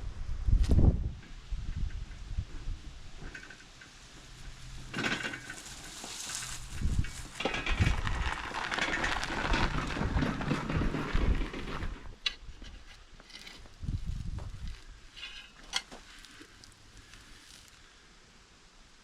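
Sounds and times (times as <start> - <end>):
rustling leafy vegetable tops: 3.3 - 18.1.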